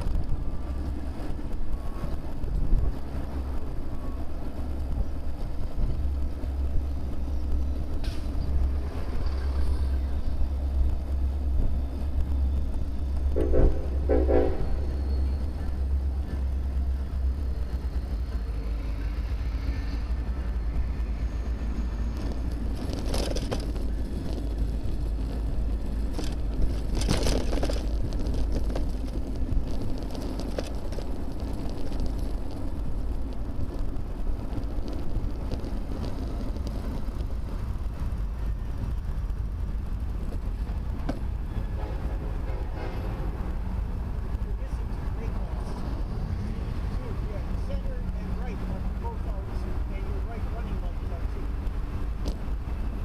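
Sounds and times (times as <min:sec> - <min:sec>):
passing traffic: 0:00.0 - 0:53.0
road noise: 0:00.0 - 0:53.0
wind rumble: 0:00.0 - 0:53.0.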